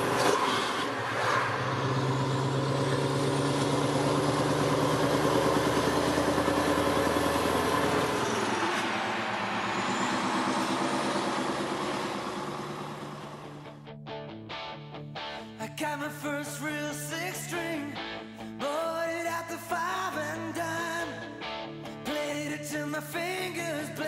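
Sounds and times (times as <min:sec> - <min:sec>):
truck engine running: 0:00.0 - 0:13.8.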